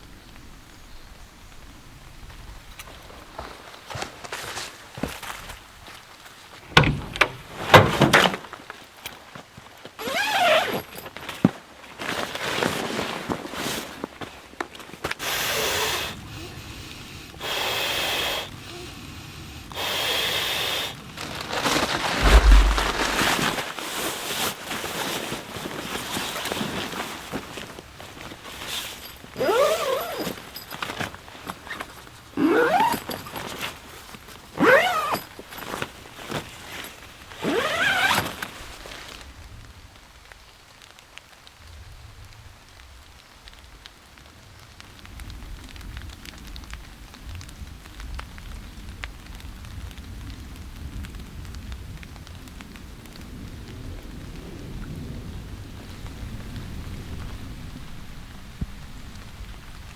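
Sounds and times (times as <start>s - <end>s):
rain falling: 21.0s - 59.9s
distant thunder rumble: 22.0s - 23.6s
short pitch-sliding sounds: 22.2s - 23.6s.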